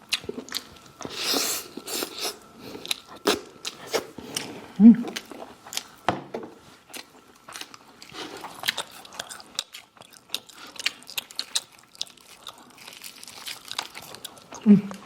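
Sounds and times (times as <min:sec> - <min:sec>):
crunchy biting and chewing: 0:06.9 - 0:14.6.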